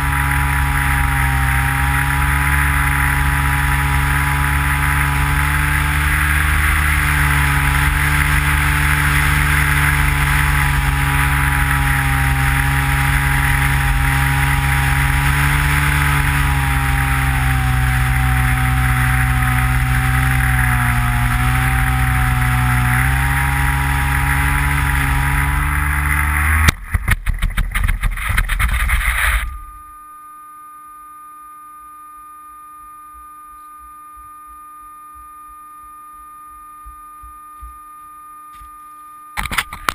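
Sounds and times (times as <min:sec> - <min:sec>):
electric motor and propeller: 0:00.0 - 0:29.7
electronic hum: 0:00.0 - 0:39.9.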